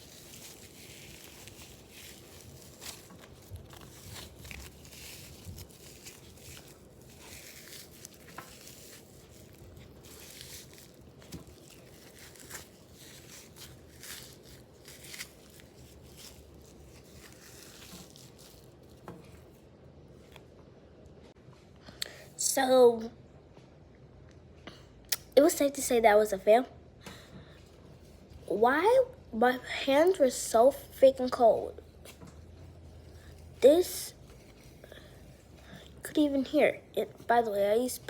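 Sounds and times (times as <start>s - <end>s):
small cracks and crunches: 0.0s - 19.5s
paper towel crinkling and rustling: 0.0s - 19.6s, 32.7s - 35.6s.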